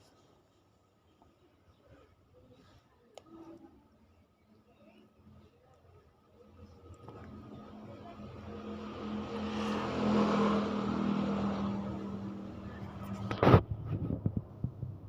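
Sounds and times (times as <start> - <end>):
vehicle passing by: 6.9 - 14.2.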